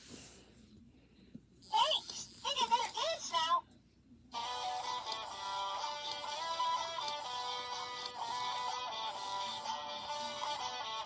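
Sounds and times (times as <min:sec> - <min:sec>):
toy playing plucked dance tune: 0:04.4 - 0:11.0.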